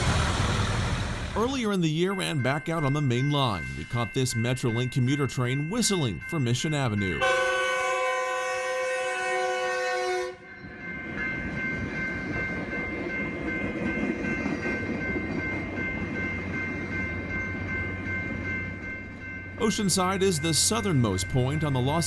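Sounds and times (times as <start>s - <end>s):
train rumbling on track: 0.0s - 3.0s, 10.6s - 22.0s
train horn chord: 7.2s - 10.5s.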